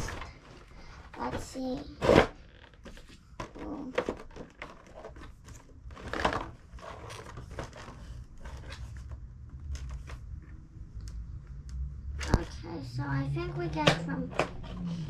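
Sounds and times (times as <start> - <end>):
packaging crackling and rustling: 2.0 - 10.4.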